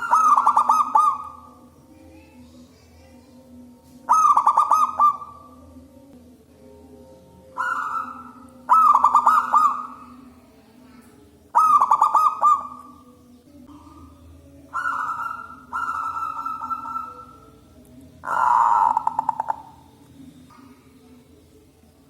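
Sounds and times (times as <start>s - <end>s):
dove cooing: 0.0s - 1.7s, 4.1s - 5.6s, 7.4s - 10.5s, 11.5s - 13.1s, 14.7s - 17.6s, 18.2s - 20.8s.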